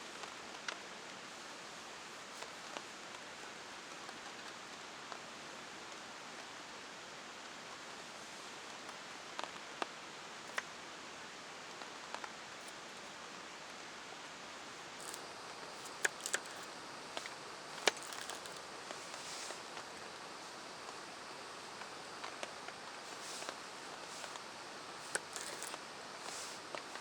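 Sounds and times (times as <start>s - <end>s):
sharp ticks: 15.0s - 15.2s, 25.0s - 26.5s
rain hiss: 18.6s - 27.0s.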